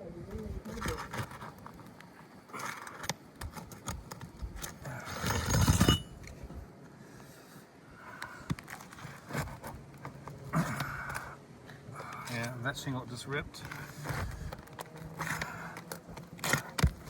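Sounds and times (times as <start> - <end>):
metal tool scraping shingles: 4.9 - 6.2.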